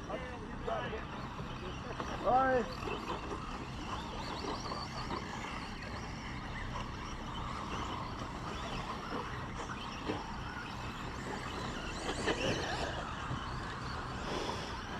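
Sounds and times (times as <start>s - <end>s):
small motors whining: 0.0s - 14.9s.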